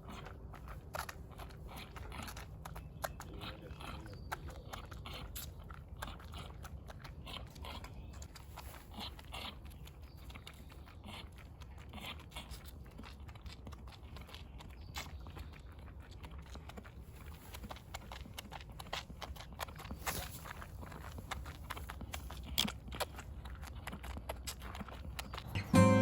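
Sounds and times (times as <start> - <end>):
horse chewing and crunching feed: 0.0 - 26.0.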